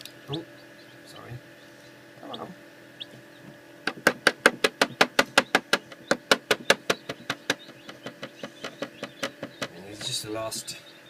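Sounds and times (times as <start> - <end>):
chick tapping on eggshell: 3.5 - 10.2.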